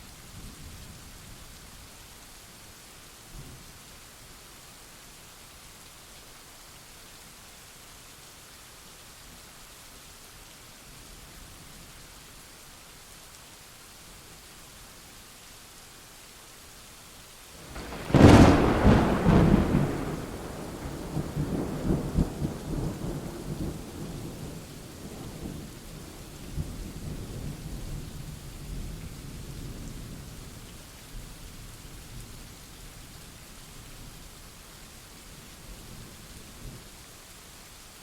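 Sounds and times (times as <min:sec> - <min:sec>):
steady rain: 0:00.0 - 0:38.0
thunder crack and rumble: 0:17.7 - 0:25.6.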